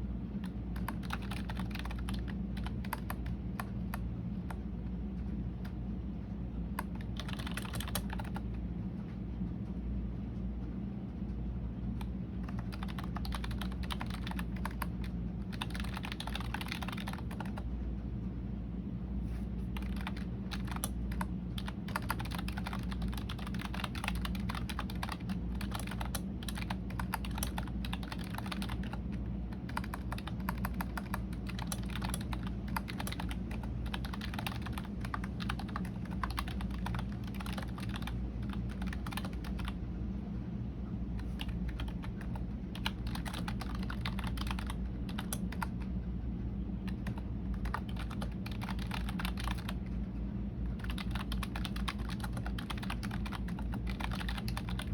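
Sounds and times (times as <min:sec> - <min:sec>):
steady low hum: 0:00.0 - 0:54.9
typing on computer keyboard: 0:00.4 - 0:04.6, 0:06.8 - 0:08.5, 0:12.0 - 0:17.6, 0:19.7 - 0:39.8, 0:41.2 - 0:45.8, 0:46.8 - 0:49.8, 0:50.7 - 0:54.9.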